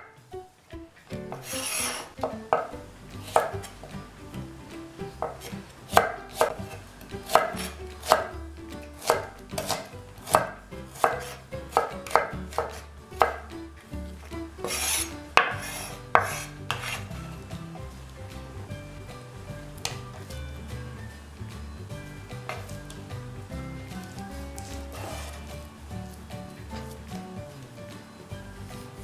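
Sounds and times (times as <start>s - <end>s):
knife scraping across board: 1.3s - 3.7s, 5.2s - 8.3s, 9.0s - 13.4s, 14.2s - 17.4s, 24.0s - 27.0s.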